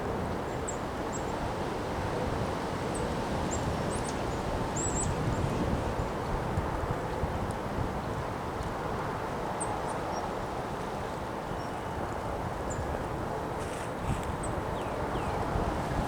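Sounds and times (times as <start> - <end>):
strong wind buffeting microphone: 1.5 - 9.5, 12.0 - 16.0.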